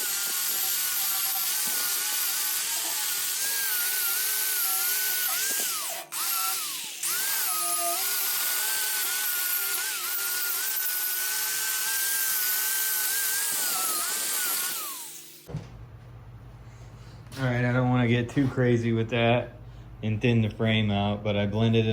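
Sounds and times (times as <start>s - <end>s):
power grinder whining on metal: 0.0s - 15.5s.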